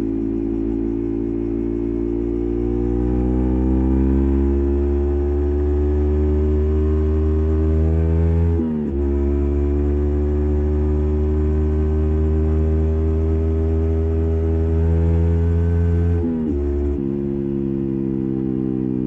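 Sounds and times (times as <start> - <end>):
motorcycle engine running: 0.0 - 5.9.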